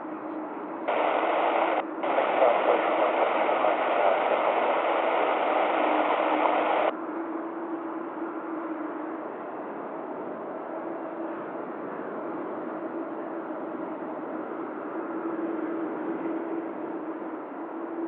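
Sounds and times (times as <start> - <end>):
low hum: 0.9 - 6.9
radio static hiss: 0.9 - 6.9.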